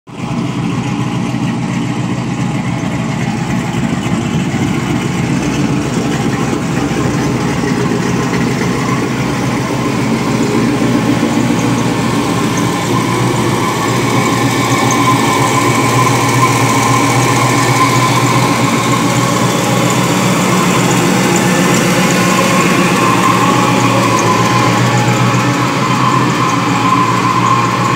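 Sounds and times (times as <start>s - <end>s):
engine running: 0.1s - 27.9s
turbo whine: 0.2s - 27.9s.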